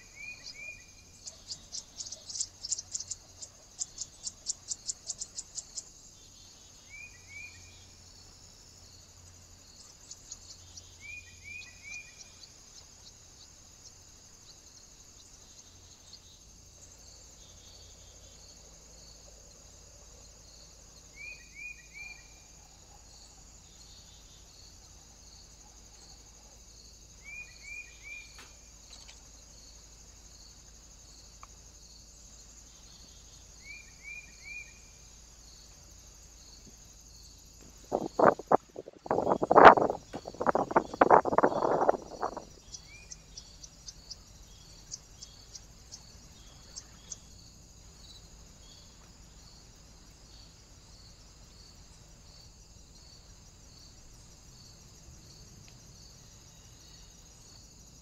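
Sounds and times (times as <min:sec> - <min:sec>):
bird chirping call: 0:00.0 - 0:05.9, 0:37.9 - 0:44.2
high insect-like hiss: 0:00.0 - 0:58.0.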